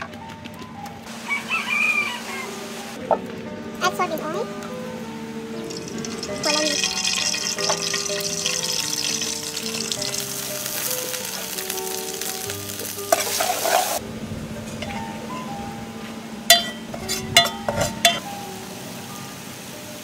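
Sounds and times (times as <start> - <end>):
food sizzling in a pot: 5.6 - 14.0
metal spatula clinking on pot: 16.5 - 18.2.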